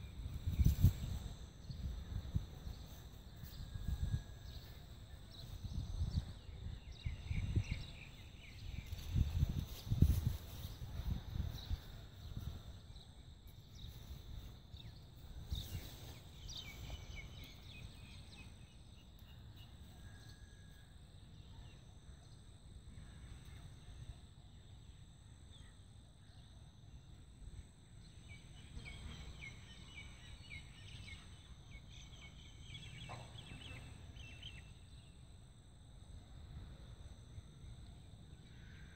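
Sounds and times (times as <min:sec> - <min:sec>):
bird chirps: 0:28.3 - 0:35.0.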